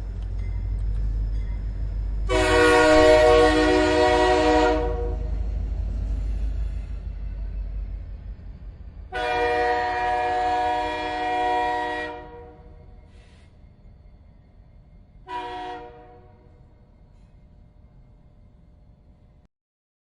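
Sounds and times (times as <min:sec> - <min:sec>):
train rumbling: 0:00.0 - 0:19.5
train horn blasts: 0:02.2 - 0:05.4, 0:09.1 - 0:12.8, 0:15.2 - 0:16.7.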